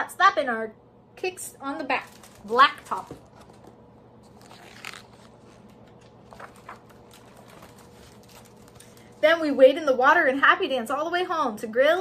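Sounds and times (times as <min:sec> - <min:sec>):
faint room hum: 0:00.0 - 0:12.0
paper page rustling: 0:01.9 - 0:09.2.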